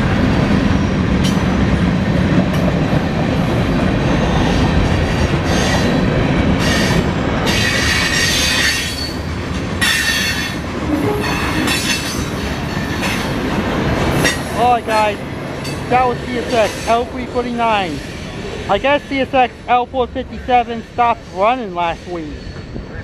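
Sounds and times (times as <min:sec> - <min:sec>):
train wheels rumbling on rail: 0:00.0 - 0:23.0
high-pitched wheel squeal: 0:09.9 - 0:12.2.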